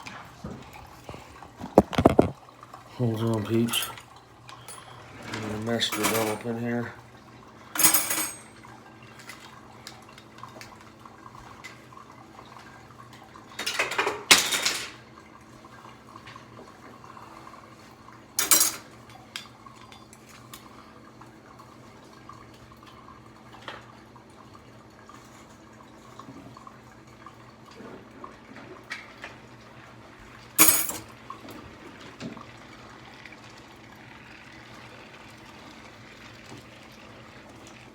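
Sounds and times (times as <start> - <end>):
dishes clattering and clinking: 0.4 - 2.4, 3.4 - 6.6, 7.7 - 9.5, 13.5 - 15.0, 18.4 - 20.3, 30.6 - 31.2.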